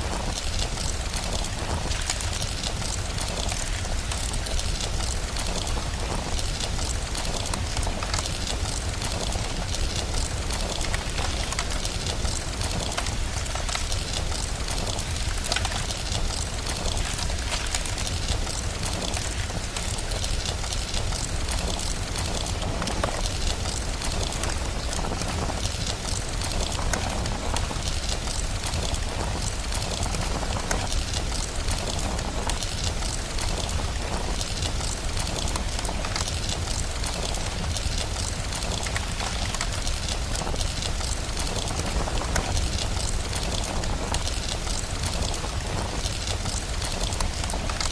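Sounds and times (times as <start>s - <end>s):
steady rain: 0.0s - 47.9s
wood fire crackling: 0.0s - 47.9s.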